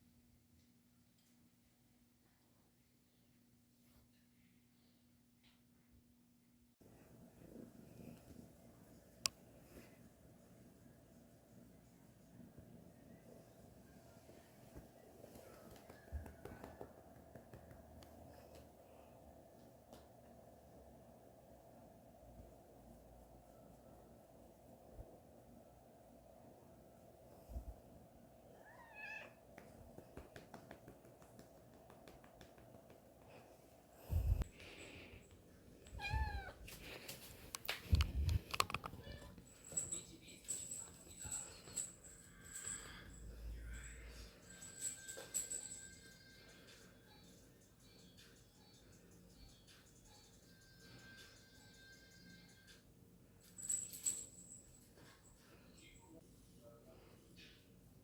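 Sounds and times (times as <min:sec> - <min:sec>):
cat meowing: 0:28.6 - 0:29.4, 0:36.0 - 0:36.6
light clicks and taps: 0:36.7 - 0:39.4.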